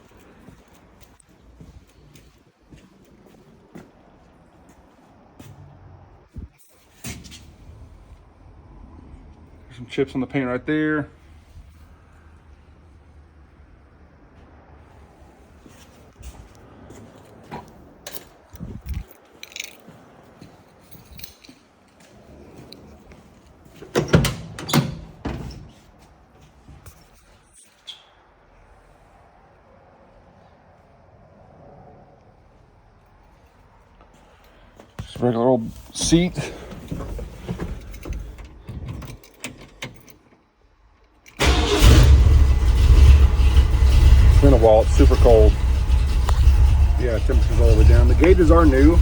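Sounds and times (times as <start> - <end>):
light clicks and rattles: 17.3 - 20.0
truck engine starting: 41.4 - 49.0.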